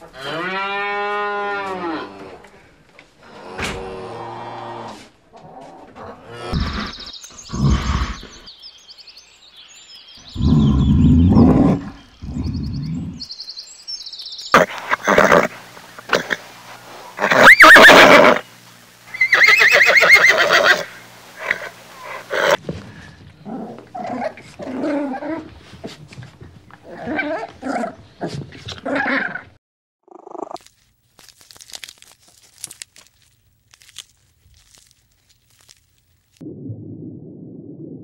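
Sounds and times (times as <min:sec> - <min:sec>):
horse neighing: 0:17.2 - 0:18.4, 0:19.1 - 0:22.6.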